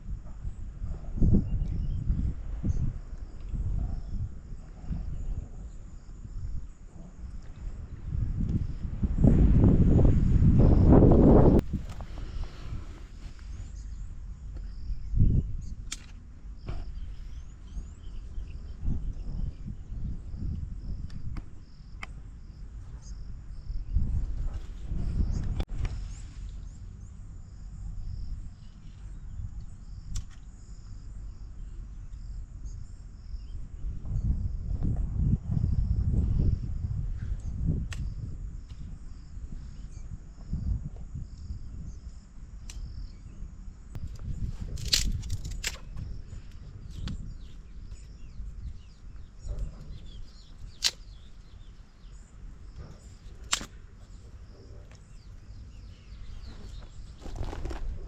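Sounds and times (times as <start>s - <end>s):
low rumbling noise: 0.0s - 29.9s
crickets chirping: 0.0s - 58.0s.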